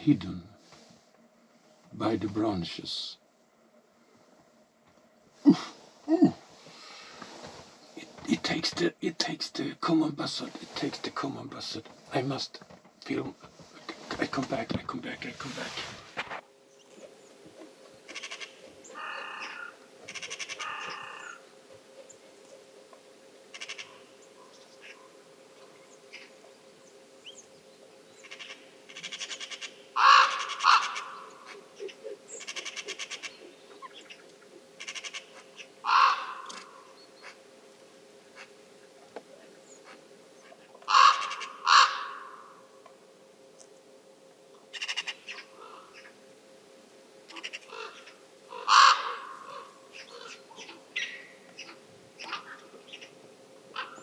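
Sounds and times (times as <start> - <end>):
crows cawing: 18.1 - 21.5, 23.5 - 25.2, 28.2 - 34.2, 34.8 - 37.4, 40.8 - 42.7, 44.7 - 46.2, 47.3 - 54.0.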